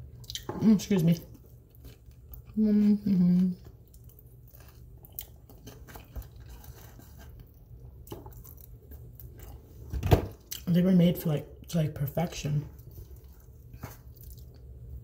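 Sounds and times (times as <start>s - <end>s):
person chewing and crunching: 0.0s - 10.8s, 12.4s - 15.0s
person humming: 2.6s - 3.6s.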